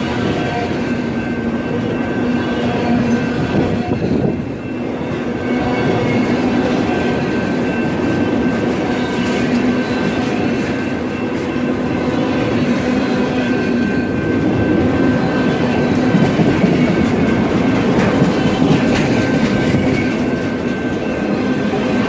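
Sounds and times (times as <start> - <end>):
steady ringing tones: 0.0 - 22.0
train wheels rumbling on rails: 0.0 - 22.0.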